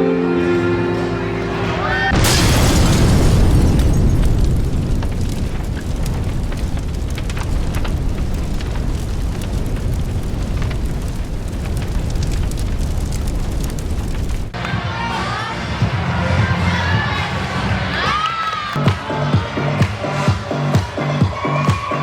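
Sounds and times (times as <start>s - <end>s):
explosion boom: 2.1s - 14.6s
roaring rumble with crackles: 2.2s - 14.6s.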